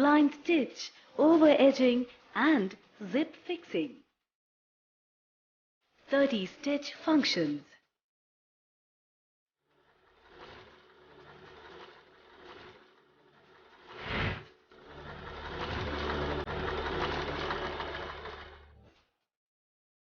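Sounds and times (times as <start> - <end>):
sewing machine stitching: 9.7 - 19.2.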